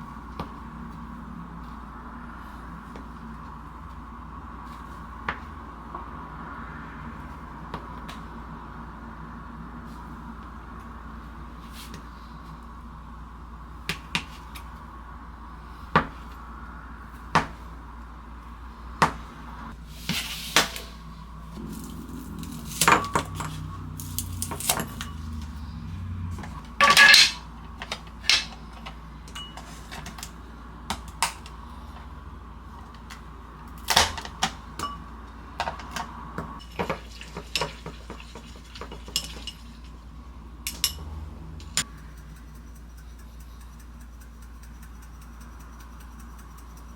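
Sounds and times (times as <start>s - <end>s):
faint steady hum: 0.0s - 46.9s
dishes and utensils clattering: 26.4s - 30.4s, 35.6s - 39.9s.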